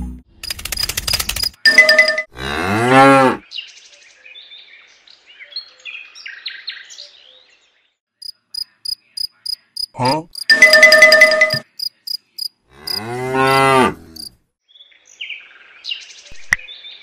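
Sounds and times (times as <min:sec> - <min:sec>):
cow mooing: 0:02.3 - 0:03.4, 0:12.7 - 0:14.3.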